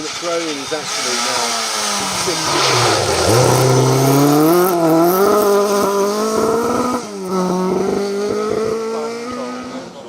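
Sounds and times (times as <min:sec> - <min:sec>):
car engine at high revs: 0:00.0 - 0:10.0.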